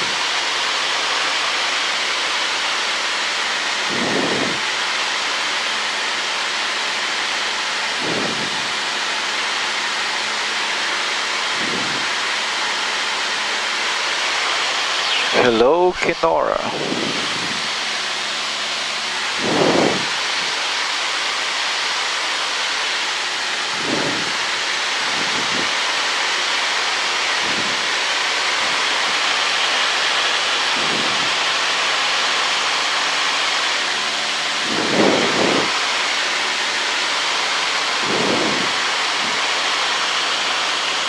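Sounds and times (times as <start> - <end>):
airplane engine at cruise: 0.0 - 41.0
air rushing over airframe: 3.7 - 5.0, 7.8 - 9.0, 11.2 - 13.0, 13.6 - 41.0.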